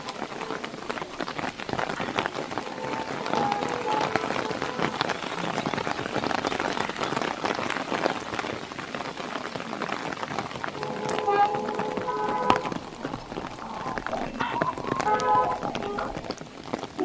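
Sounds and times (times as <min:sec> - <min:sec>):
heavy rain hitting a car: 0:00.0 - 0:17.0
faint short tone: 0:10.8 - 0:16.3.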